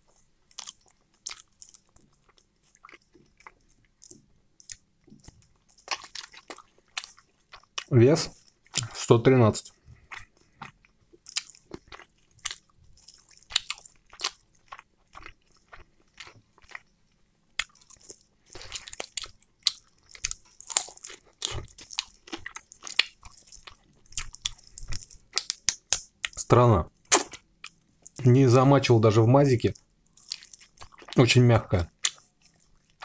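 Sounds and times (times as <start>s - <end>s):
chewing and biting chicken: 10.0s - 16.9s, 17.6s - 26.1s.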